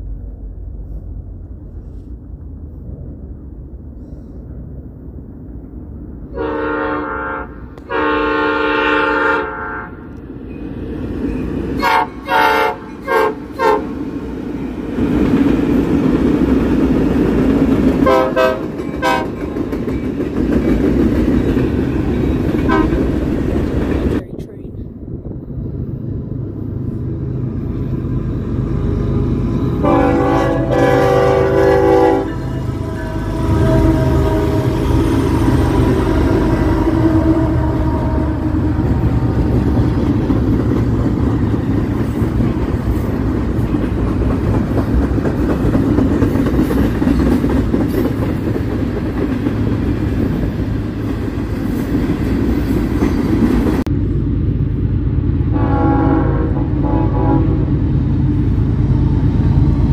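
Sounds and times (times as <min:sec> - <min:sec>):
train rumbling past: 0:00.0 - 0:59.9
locomotive air horn blast: 0:06.3 - 0:10.2, 0:11.8 - 0:13.9, 0:18.0 - 0:19.3, 0:22.7 - 0:23.0, 0:29.8 - 0:38.6, 0:55.5 - 0:57.7.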